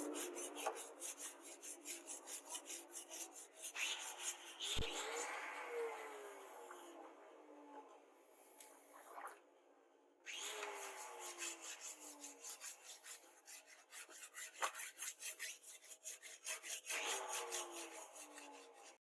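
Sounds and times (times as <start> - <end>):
hand tool rasping: 0.0 - 4.9, 10.6 - 19.0.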